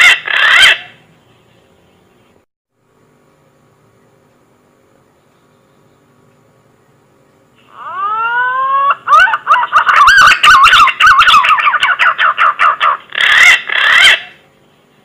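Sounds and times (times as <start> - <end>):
warbling bird call whistles: 7.6 - 14.4.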